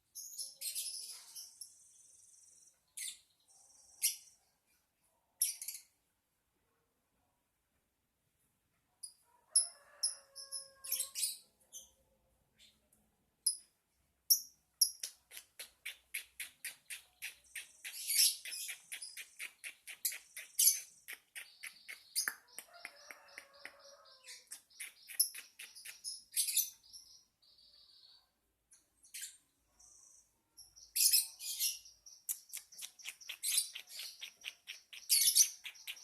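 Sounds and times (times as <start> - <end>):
lovebird chirping: 14.3 - 28.3, 29.0 - 36.0.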